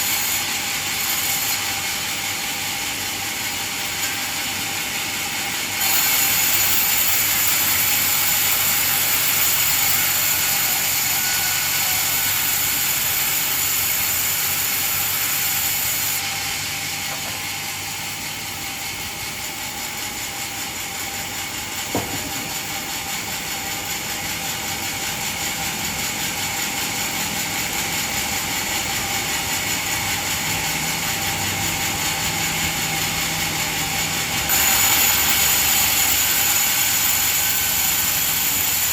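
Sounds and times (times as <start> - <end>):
band saw blade whining: 0.0 - 38.9
sharp knock: 21.9 - 22.4.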